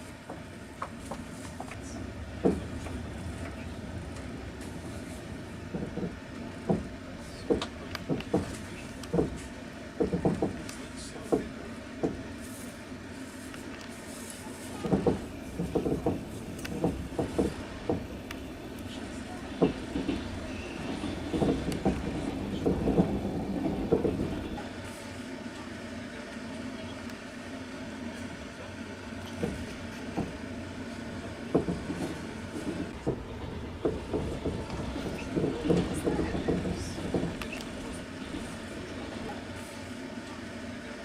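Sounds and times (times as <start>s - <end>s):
train rumble: 0.0s - 41.0s
train wheels clacking: 0.3s - 12.2s, 14.8s - 24.6s, 31.4s - 39.4s.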